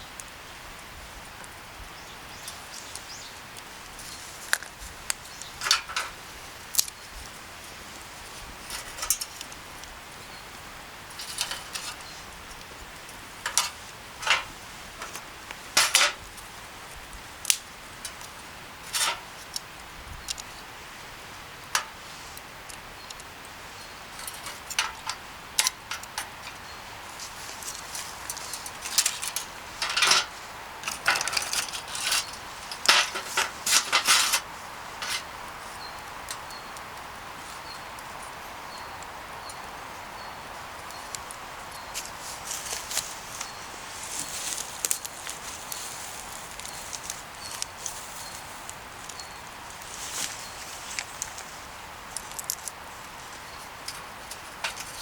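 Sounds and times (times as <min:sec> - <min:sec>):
faint hiss: 0:00.0 - 0:55.0
utensils and dishes clinking: 0:05.6 - 0:06.2, 0:13.4 - 0:15.2, 0:15.8 - 0:16.2, 0:18.9 - 0:19.2, 0:27.7 - 0:35.3.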